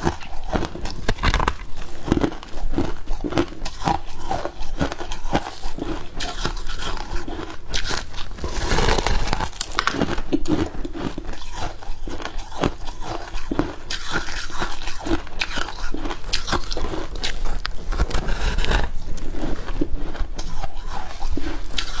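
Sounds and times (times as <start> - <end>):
chewing crunchy frost: 0.0 - 22.0.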